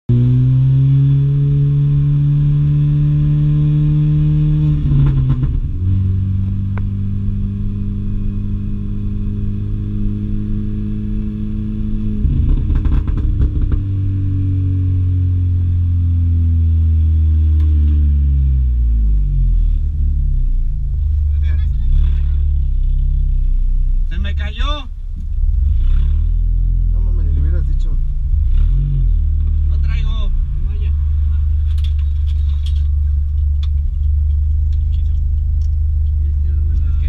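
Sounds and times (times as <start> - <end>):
car engine at track speed: 0.1 - 37.0
gear change clatter: 12.3 - 13.9, 31.0 - 37.0.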